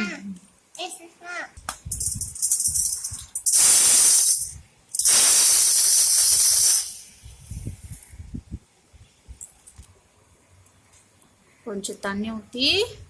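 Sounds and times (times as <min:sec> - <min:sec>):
loud hissing bursts: 0:02.5 - 0:08.0.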